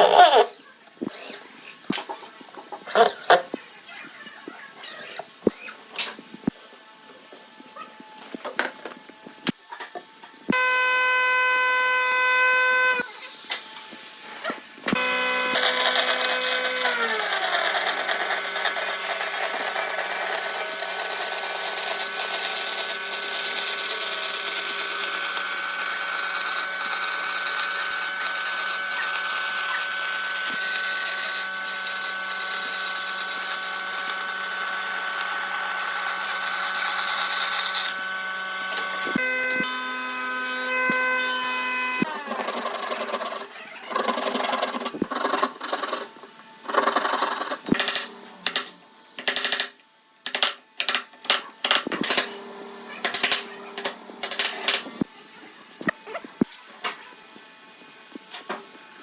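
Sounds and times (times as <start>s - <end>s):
power tool cutting wood: 0.0s - 1.4s, 10.5s - 55.1s.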